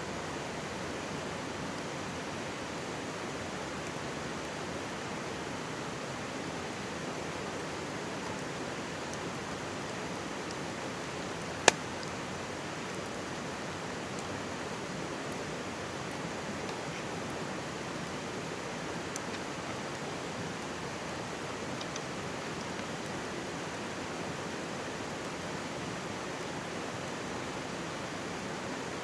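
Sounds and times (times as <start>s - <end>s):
stream babbling: 0.4s - 29.0s
campfire crackling and popping: 11.6s - 12.2s.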